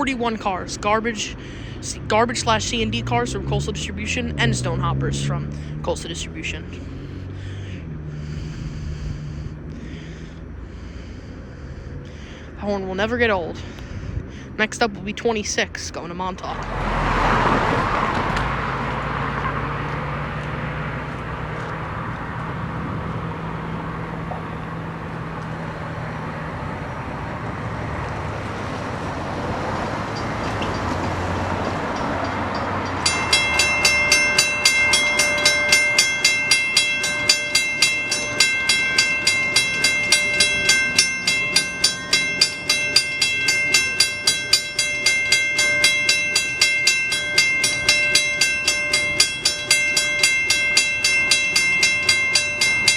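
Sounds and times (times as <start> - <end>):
train engine drone: 0.0 - 52.9
wheels clicking over rail joints: 16.4 - 52.9
high ringing tones: 30.0 - 52.9.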